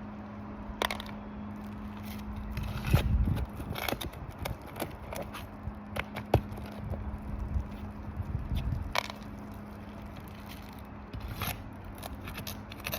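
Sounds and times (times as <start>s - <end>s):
steady low hum: 0.0s - 12.9s
shingles scraping: 8.5s - 12.9s.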